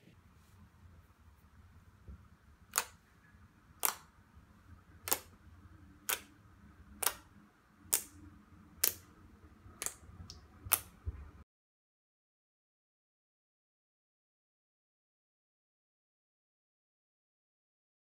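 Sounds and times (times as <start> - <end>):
sharp clicks: 2.7 - 3.0, 3.8 - 4.1, 5.0 - 5.3, 6.0 - 6.3, 7.0 - 7.3, 7.9 - 8.2, 8.8 - 9.1.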